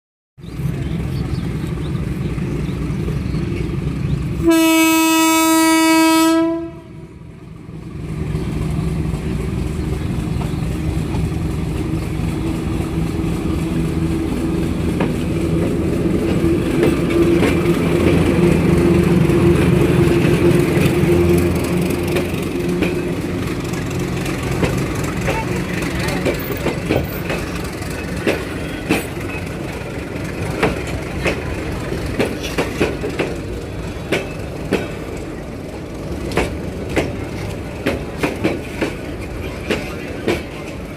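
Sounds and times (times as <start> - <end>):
train rumbling: 0.4 - 40.9
train horn blast: 4.4 - 7.1.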